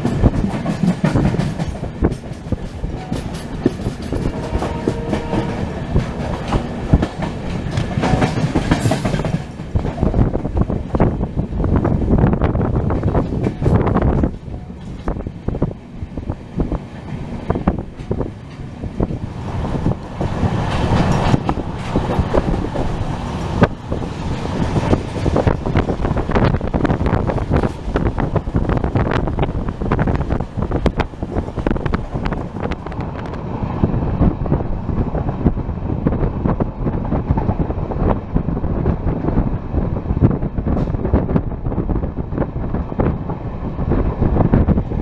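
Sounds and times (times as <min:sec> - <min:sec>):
sharp clicks and rattles: 0:00.0 - 0:05.0
train wheels rumbling on rails: 0:00.0 - 0:45.0
wind buffeting microphone: 0:00.0 - 0:45.0.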